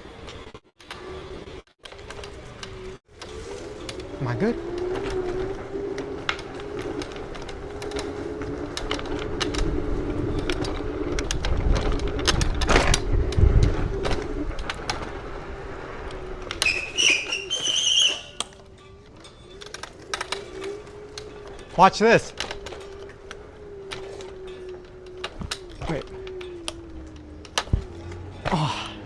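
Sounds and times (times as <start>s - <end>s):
electric scooter motor whining: 0.0s - 29.0s
road rattle and rumble: 0.0s - 29.0s
short high-pitched squeals: 16.6s - 18.6s.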